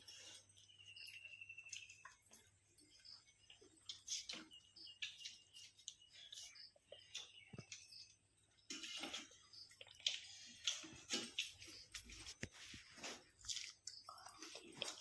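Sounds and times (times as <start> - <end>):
chewing: 0.0 - 15.0
slurping and crackling: 8.6 - 15.0.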